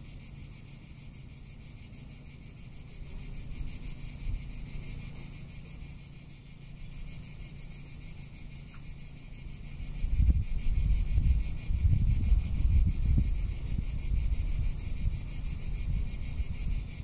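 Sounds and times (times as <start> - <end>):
cicadas buzzing: 0.0 - 17.0
wind rumble on microphone: 2.9 - 5.2, 6.7 - 17.0.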